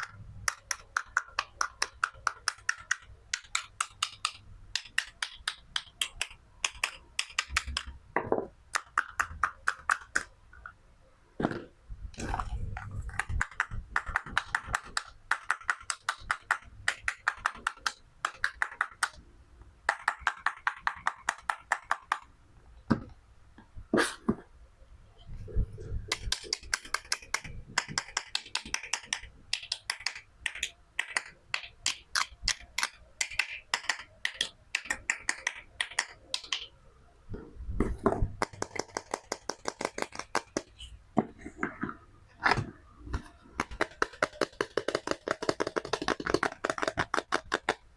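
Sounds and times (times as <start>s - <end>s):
toy pieces knocking on board: 0.0s - 10.3s, 13.0s - 19.2s, 26.1s - 36.7s, 37.9s - 40.7s, 43.6s - 47.8s.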